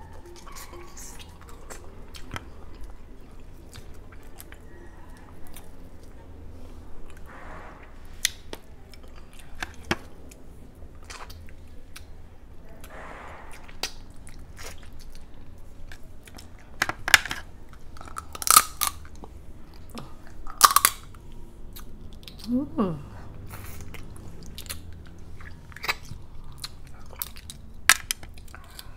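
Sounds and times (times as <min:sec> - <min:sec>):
chewing shell-on shrimp: 0:00.0 - 0:07.3, 0:08.3 - 0:12.8, 0:13.9 - 0:22.5, 0:23.2 - 0:28.9
shell cracks: 0:18.0 - 0:19.1, 0:20.5 - 0:21.1.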